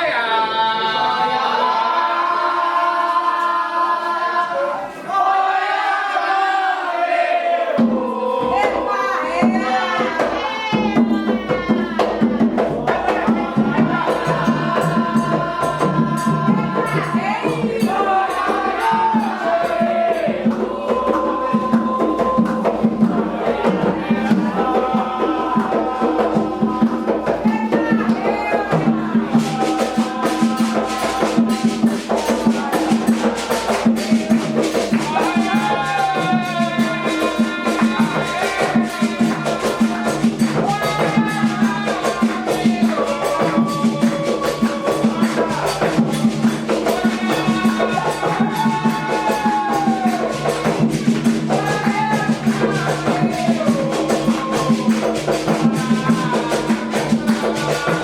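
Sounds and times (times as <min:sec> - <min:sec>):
voices singing a chant: 0:00.0 - 0:58.0
hand drums: 0:07.8 - 0:58.0
rattling percussion: 0:07.8 - 0:58.0.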